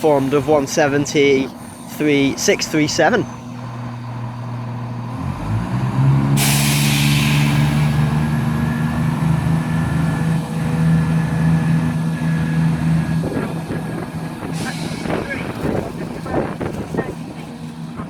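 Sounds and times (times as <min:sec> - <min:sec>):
diesel train engines revving: 0:00.0 - 0:18.0
loud air hiss: 0:06.3 - 0:08.2, 0:14.5 - 0:15.8.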